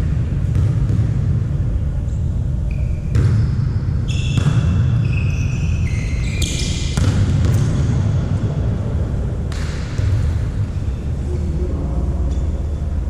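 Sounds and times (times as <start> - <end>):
low hall rumble: 0.0 - 13.0
shoes squeaking on court floor: 2.1 - 7.7
volleyball being struck: 6.4 - 7.8, 9.5 - 10.3.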